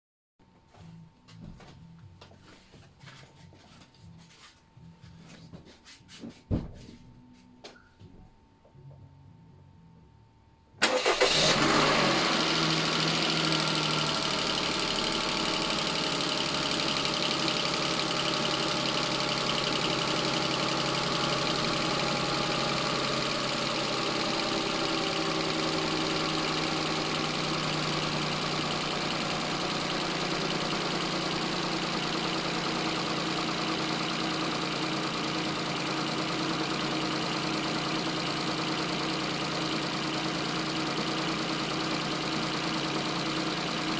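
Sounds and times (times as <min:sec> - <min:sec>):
car engine starting and idling: 0:10.8 - 0:43.9.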